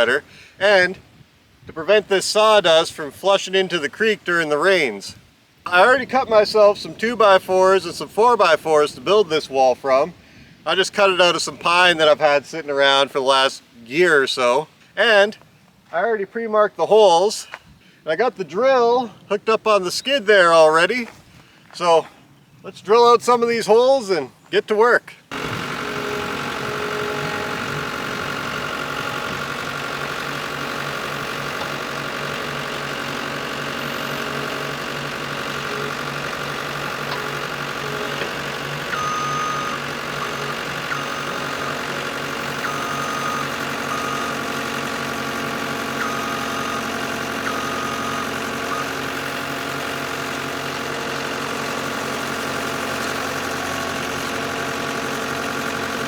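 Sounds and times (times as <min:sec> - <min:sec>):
auger boring holes: 0:25.3 - 0:56.0
engine running: 0:25.3 - 0:56.0.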